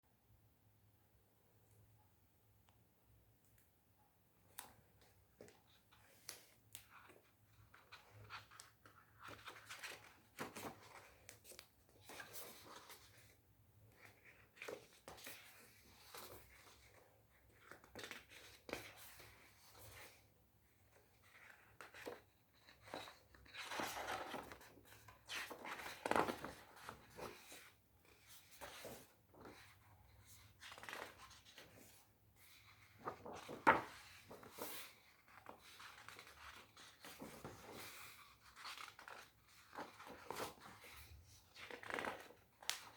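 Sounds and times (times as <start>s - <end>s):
paper pages rustling: 21.4s - 42.9s.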